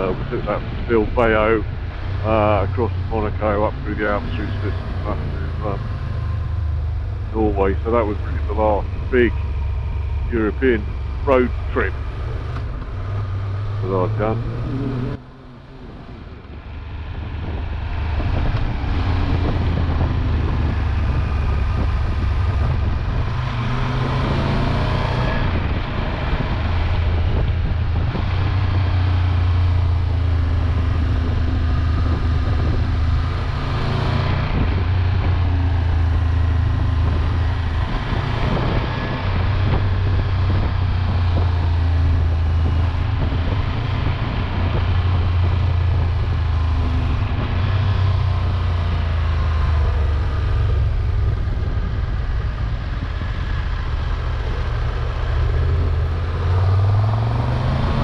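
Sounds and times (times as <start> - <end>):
wind rushing over microphone: 0.0 - 58.0
motorcycle engine running: 25.4 - 33.7, 34.3 - 58.0.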